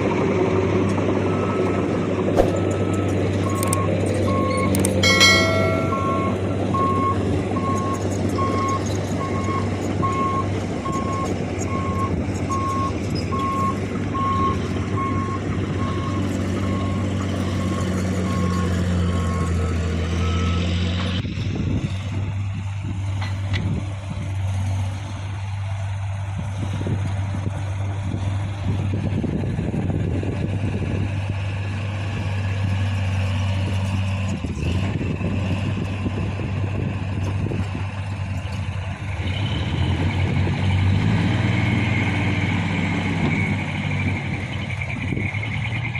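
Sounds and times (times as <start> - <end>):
diesel truck engine running: 0.0 - 45.9
reversing alarm beeping: 2.4 - 17.0.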